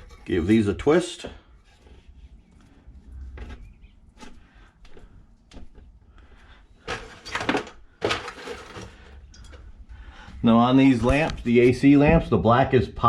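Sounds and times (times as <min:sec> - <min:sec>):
wires clicking and rustling: 0:06.8 - 0:09.9.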